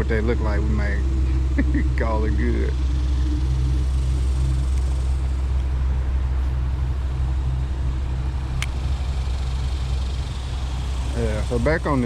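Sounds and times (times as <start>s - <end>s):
low rumble: 2.6s - 12.0s.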